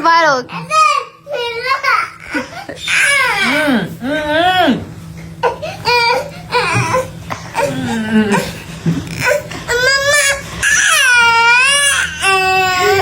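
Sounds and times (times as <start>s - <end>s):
child crying: 9.2s - 13.0s.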